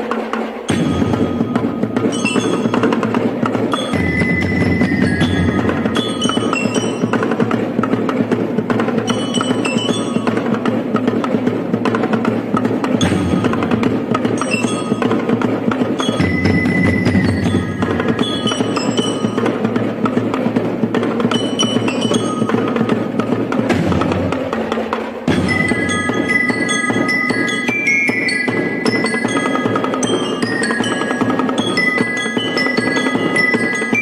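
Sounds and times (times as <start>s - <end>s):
wooden and metal percussion: 0.0s - 34.0s
ringing high notes: 0.7s - 7.7s, 9.0s - 10.8s, 13.0s - 20.3s, 21.3s - 23.5s, 25.3s - 34.0s.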